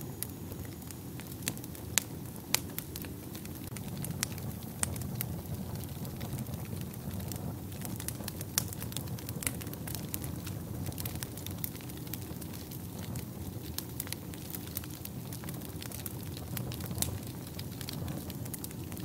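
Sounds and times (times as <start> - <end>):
fire crackling and popping: 0.0 - 19.0
fire flames rumbling: 0.1 - 19.0.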